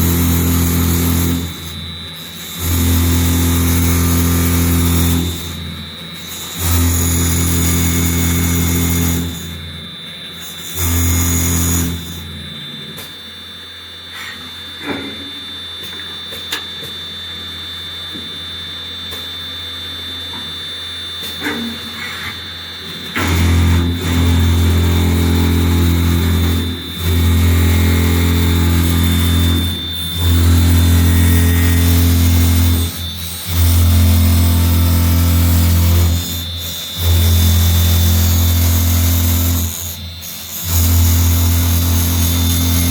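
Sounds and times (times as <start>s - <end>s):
drilling machine hum: 0.0s - 13.0s, 20.6s - 42.9s
high whine: 11.5s - 42.9s.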